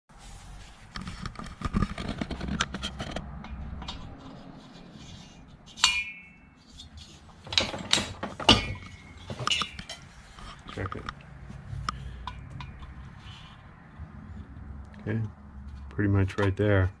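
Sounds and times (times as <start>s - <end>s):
metal tools clicking and knocking: 2.4s - 4.2s, 5.7s - 11.2s, 11.9s - 13.0s.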